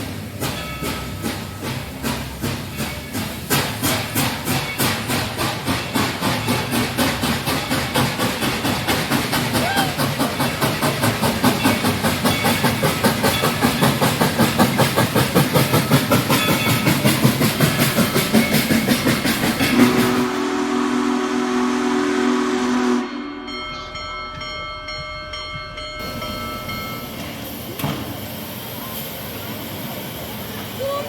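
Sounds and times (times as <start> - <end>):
steam locomotive exhaust beating: 0.0 - 31.0
chime steam whistle: 15.7 - 27.4.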